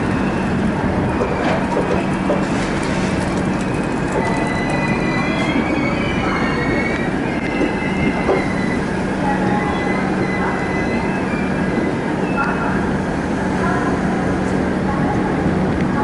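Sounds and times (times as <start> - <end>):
train rumbling on rails: 0.0 - 16.0
train wheels squealing: 4.2 - 12.6.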